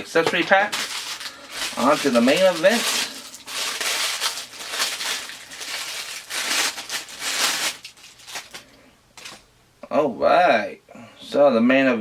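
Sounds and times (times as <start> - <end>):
plastic packaging crinkling: 0.1 - 9.4.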